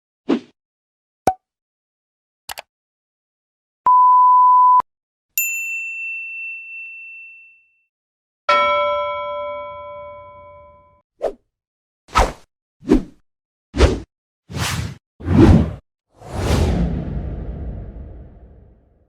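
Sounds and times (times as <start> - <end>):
bell-like chime: 5.4 - 7.8, 8.5 - 11.0.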